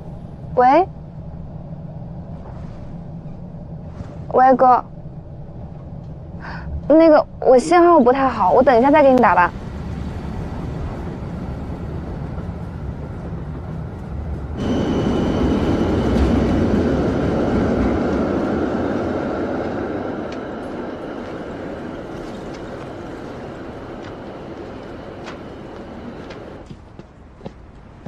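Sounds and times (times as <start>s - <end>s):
train rumble on rails: 0.0s - 28.0s
train rushing sound: 0.0s - 28.0s
faint high whine: 14.4s - 26.7s.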